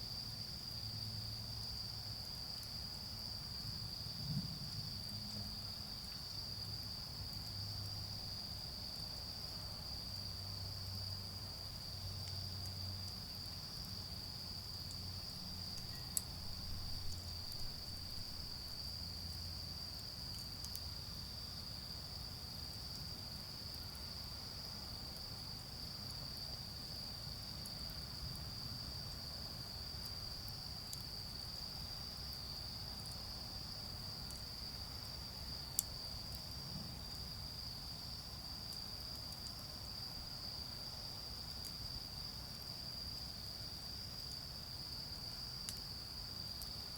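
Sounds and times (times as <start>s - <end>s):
insects trilling: 5.0s - 25.5s, 26.1s - 46.9s
charcoal fire crackling: 10.0s - 21.3s.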